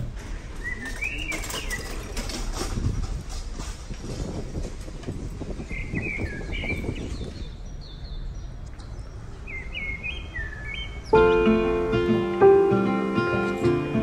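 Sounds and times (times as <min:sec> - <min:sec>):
bird chirping: 0:00.3 - 0:02.4, 0:05.6 - 0:12.2.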